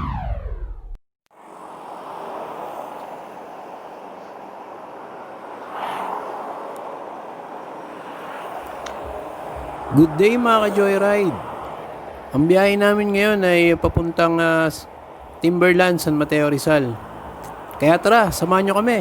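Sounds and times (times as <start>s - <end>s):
falling whoosh: 0.0s - 1.0s
wind and road noise: 0.0s - 19.0s.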